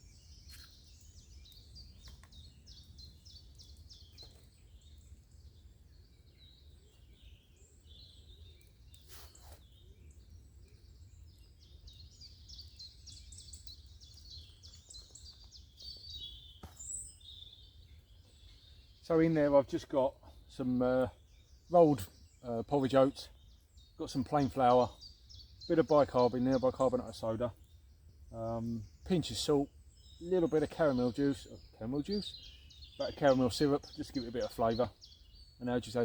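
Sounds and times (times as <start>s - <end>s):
rustle: 0.0s - 19.1s
small birds chirping: 0.0s - 36.0s.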